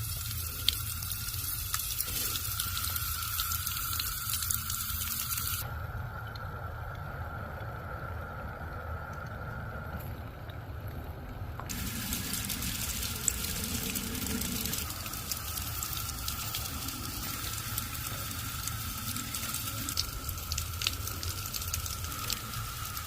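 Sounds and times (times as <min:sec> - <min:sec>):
running water: 0:00.0 - 0:05.7, 0:11.6 - 0:23.0
sharp drip-like ticks: 0:00.0 - 0:23.0.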